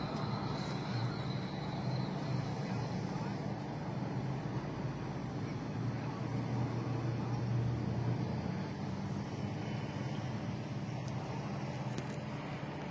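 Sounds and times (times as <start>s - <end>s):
large engine running: 0.0s - 12.9s.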